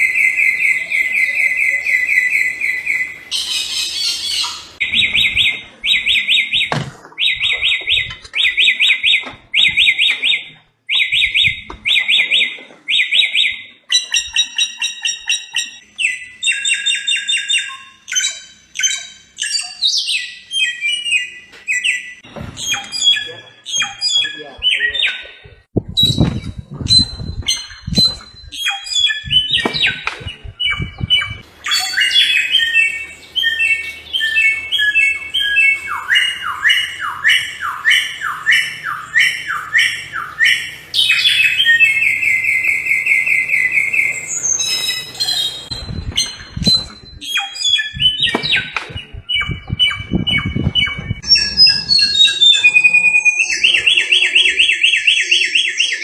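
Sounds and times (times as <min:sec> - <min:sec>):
bird singing: 0:00.0 - 0:56.0
low thuds: 0:25.7 - 0:28.6, 0:29.2 - 0:31.4, 0:45.7 - 0:47.2, 0:47.9 - 0:51.7.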